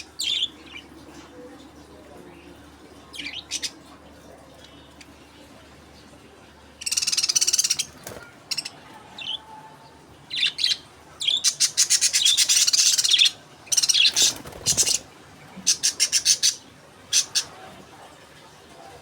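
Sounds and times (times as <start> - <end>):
parrots chattering chirps: 6.8 - 9.4, 10.3 - 17.6.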